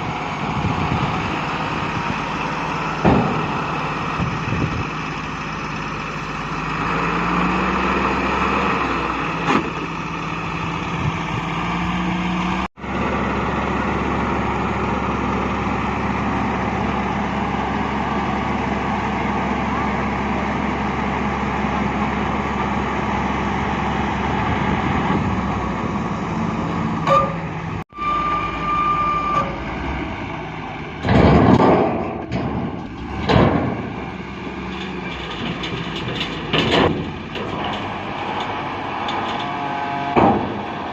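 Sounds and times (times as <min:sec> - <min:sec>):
heavy diesel engine running: 0:00.0 - 0:40.9
short steady tone: 0:27.0 - 0:29.8.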